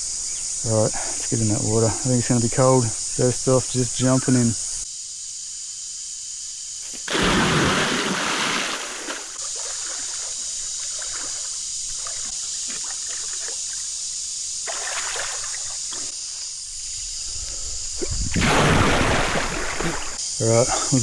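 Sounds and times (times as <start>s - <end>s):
high insect drone: 0.0s - 21.0s
person splashing into creek: 6.9s - 16.2s, 17.8s - 20.2s
water sloshing and trickling: 7.1s - 16.2s, 18.0s - 20.2s.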